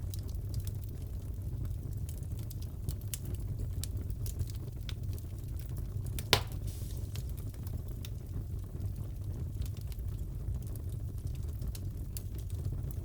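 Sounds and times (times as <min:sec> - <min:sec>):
low fire rumble: 0:00.0 - 0:13.0
wood fire crackling: 0:00.0 - 0:13.0
loud fire pop: 0:06.2 - 0:07.4.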